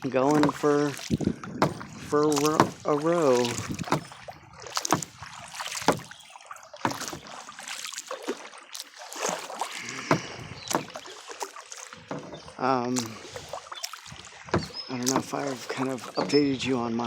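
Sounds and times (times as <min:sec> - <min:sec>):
paddle clicks: 0:00.0 - 0:17.0
paddle splashing in water: 0:00.0 - 0:17.0.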